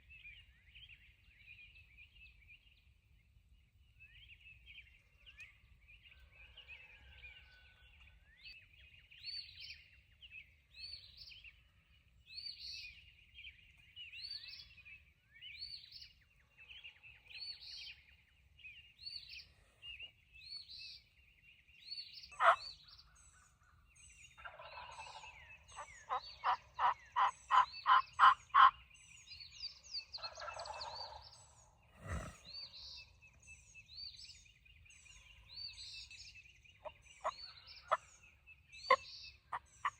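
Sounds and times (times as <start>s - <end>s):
small birds singing: 0.0s - 39.9s
turkey yelps: 22.4s - 22.7s, 25.8s - 28.7s.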